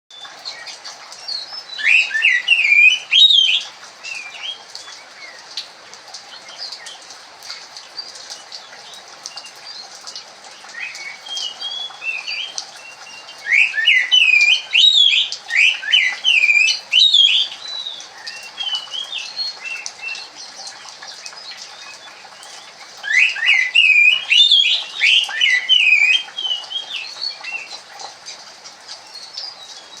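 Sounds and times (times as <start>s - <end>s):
soft bird chirps: 0.2s - 5.4s, 10.7s - 27.8s
bird singing whistled phrases: 1.5s - 4.6s, 10.8s - 20.3s, 23.0s - 27.8s.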